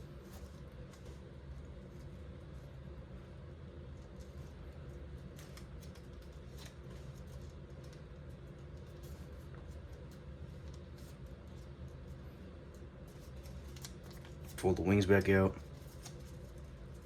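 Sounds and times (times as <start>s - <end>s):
steady low hum: 0.0s - 17.0s
paper being folded: 5.2s - 8.0s.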